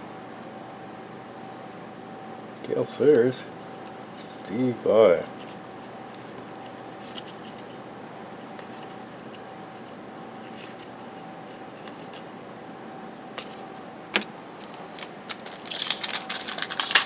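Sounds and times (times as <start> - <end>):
faint hum: 0.0 - 17.0
cards sliding and ticking: 5.4 - 7.8, 8.4 - 12.4
card and wrapper rustling: 8.5 - 12.4, 14.6 - 17.0.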